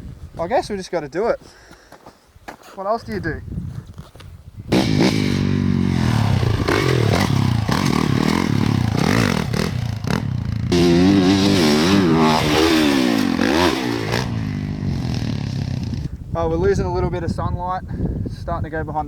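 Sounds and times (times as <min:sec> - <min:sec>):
motocross bike engine revving: 0:04.7 - 0:16.1.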